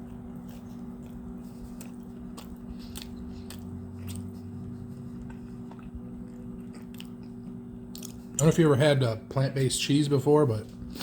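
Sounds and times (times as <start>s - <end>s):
low hum: 0.0s - 8.5s
chewing crispy pizza: 0.0s - 8.7s.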